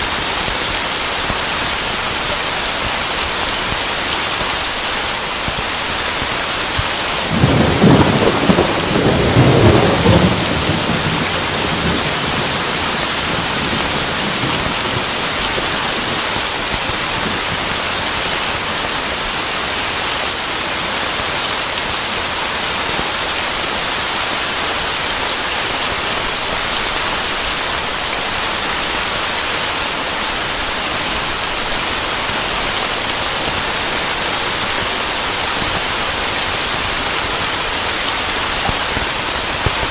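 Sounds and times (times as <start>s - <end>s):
heavy rain: 0.0s - 39.9s
thunder rumbling: 7.1s - 17.8s.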